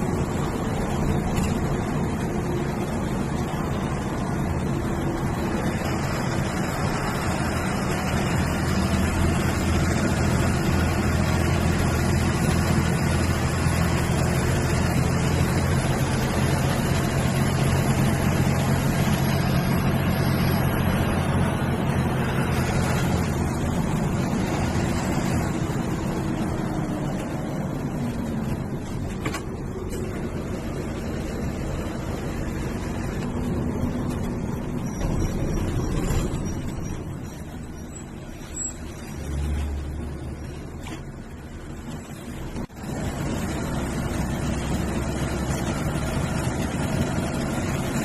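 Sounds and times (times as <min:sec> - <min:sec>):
bus diesel engine drone: 0:00.0 - 0:48.0
road noise: 0:00.0 - 0:48.0.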